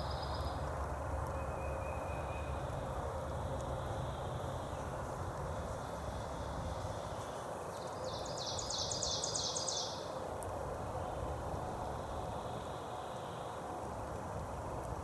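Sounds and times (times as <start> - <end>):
outdoor background noise: 0.0 - 15.0
songbird trill: 7.0 - 10.1.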